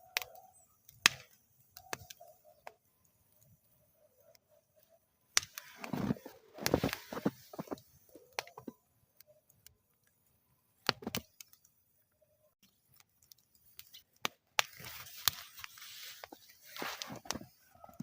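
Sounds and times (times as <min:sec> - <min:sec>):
wood fire crackling and popping: 0:00.0 - 0:18.0
fire hissing: 0:05.4 - 0:08.7, 0:13.6 - 0:17.9.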